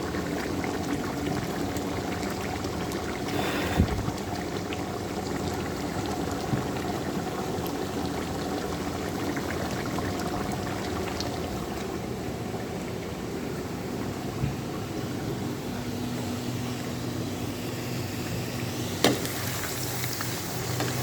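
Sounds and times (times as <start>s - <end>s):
pot boiling: 0.0s - 13.0s, 17.2s - 21.0s.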